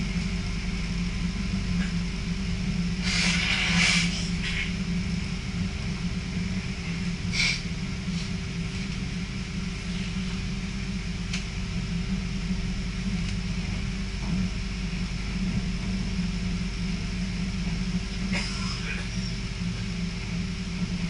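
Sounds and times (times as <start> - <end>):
train rumble inside carriage: 0.0 - 21.0
brief hiss: 3.0 - 4.6.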